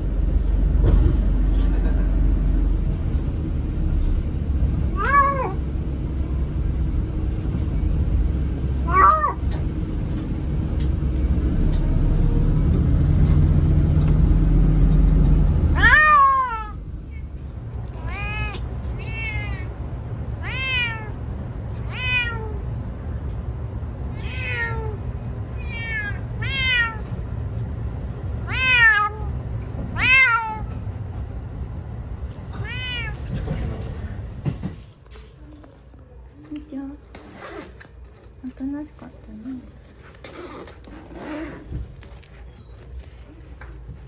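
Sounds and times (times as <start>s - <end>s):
low vehicle rumble: 0.0s - 36.9s
cat meowing: 4.9s - 5.6s, 8.8s - 9.6s, 15.7s - 17.3s, 17.9s - 22.7s, 24.1s - 27.2s, 28.4s - 29.4s, 30.0s - 30.8s, 32.4s - 33.5s.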